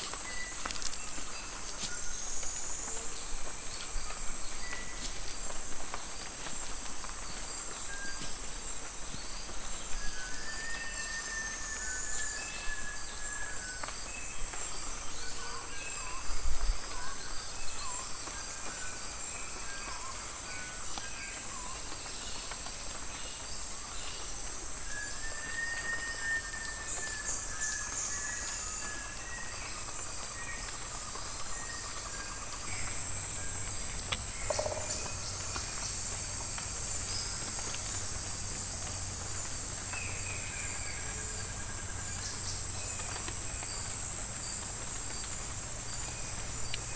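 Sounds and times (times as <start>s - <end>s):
bird calls and whistles: 9.8s - 14.5s, 24.8s - 30.8s
high-pitched insect drone: 24.4s - 45.3s.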